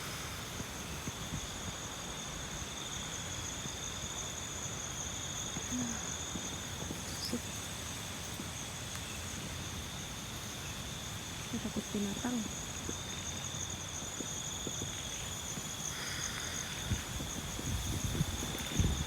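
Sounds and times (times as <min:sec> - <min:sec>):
night insects shrilling: 0:00.0 - 0:19.0
wind buffeting microphone: 0:14.1 - 0:19.0.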